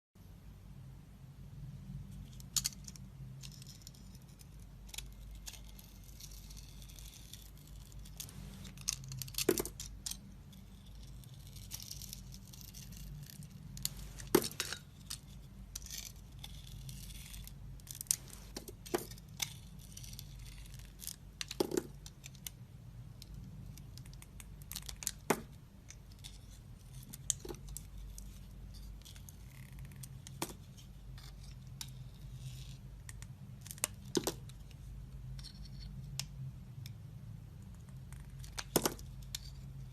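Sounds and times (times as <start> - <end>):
knife scraping soap: 3.7 - 9.4, 15.4 - 17.5, 19.4 - 21.2.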